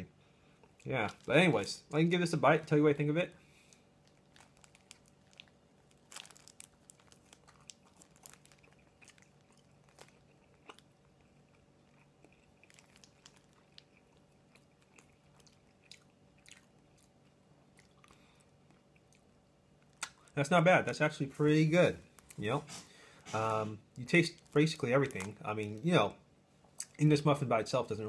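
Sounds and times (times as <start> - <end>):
person chewing with mouth clicks: 6.9 - 19.3.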